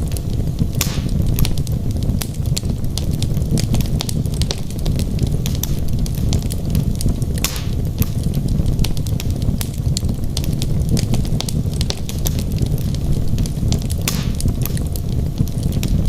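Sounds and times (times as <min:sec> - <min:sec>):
fire flames rumbling: 0:00.0 - 0:16.0
logs crackling and popping: 0:00.0 - 0:16.0.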